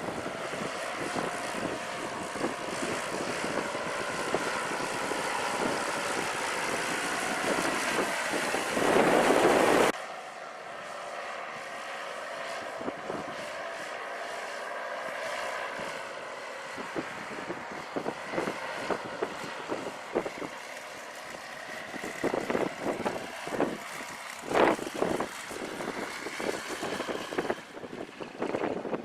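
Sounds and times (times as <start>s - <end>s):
wind buffeting microphone: 0.0s - 9.9s, 12.7s - 13.4s, 16.7s - 29.0s
paramotor engine and propeller: 0.0s - 29.0s.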